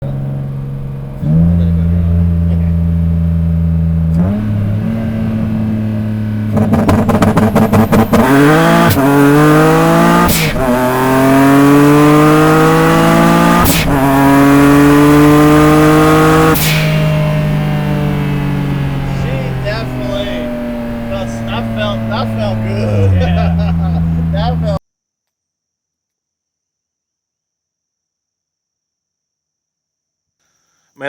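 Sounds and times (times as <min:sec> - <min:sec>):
car engine accelerating hard: 0:00.0 - 0:24.8
gear shift bursts: 0:00.0 - 0:24.8.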